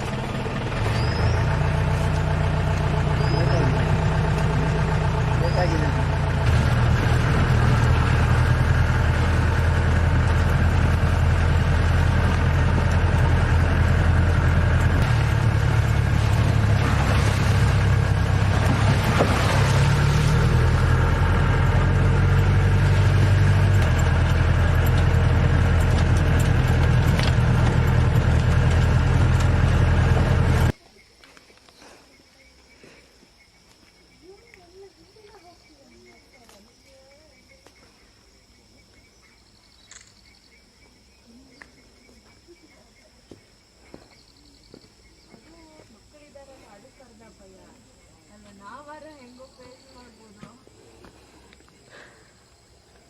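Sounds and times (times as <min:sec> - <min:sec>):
vehicle engine humming: 0:00.0 - 0:30.8.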